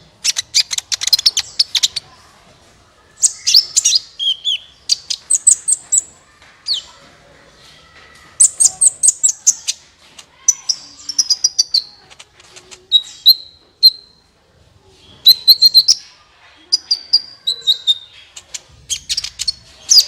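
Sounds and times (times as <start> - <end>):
bird singing high chirps and trills: 0.2 - 2.1, 3.2 - 6.1, 8.4 - 9.8, 10.4 - 12.0, 12.8 - 14.2, 14.9 - 20.0.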